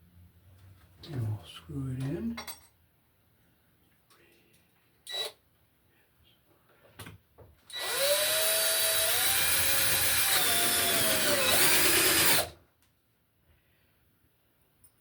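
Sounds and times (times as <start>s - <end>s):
power drill driving a screw: 7.7s - 12.6s.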